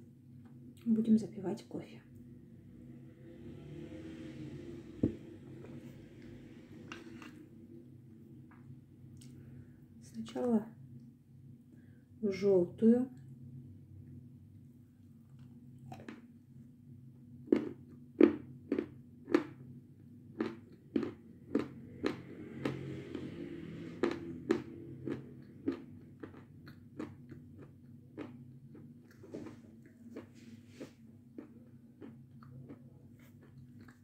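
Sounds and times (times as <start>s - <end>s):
low steady hum: 0.0s - 34.0s
crunching and chewing chalk: 17.4s - 19.7s, 20.3s - 34.0s.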